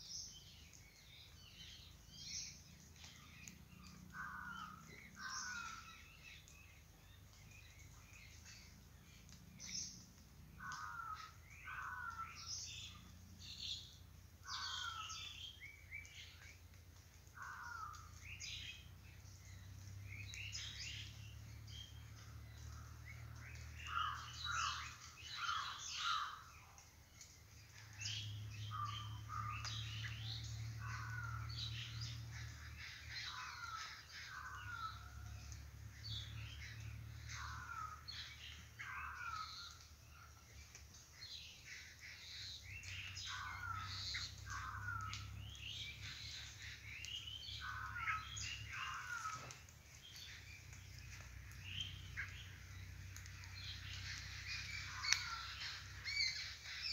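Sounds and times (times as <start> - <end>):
wild birds chirping: 0.0 - 56.9.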